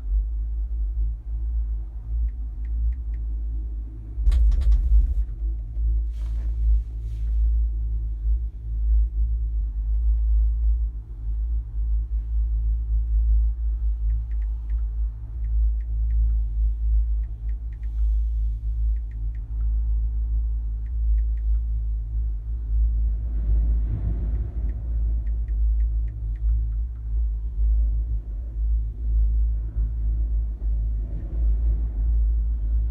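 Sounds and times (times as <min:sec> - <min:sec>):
wind buffeting microphone: 0:04.0 - 0:07.0.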